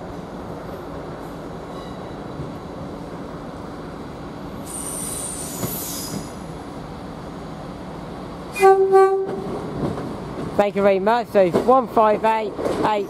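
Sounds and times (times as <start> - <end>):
train rumbling: 0.0 - 13.0
wheels or brakes squealing: 4.7 - 6.4.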